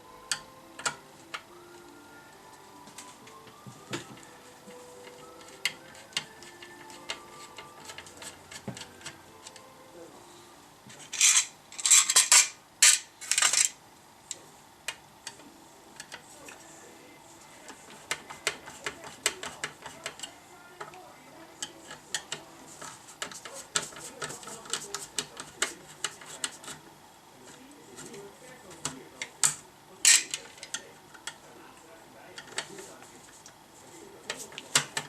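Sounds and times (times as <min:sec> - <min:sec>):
metal parts and tools clattering: 0:11.0 - 0:13.8.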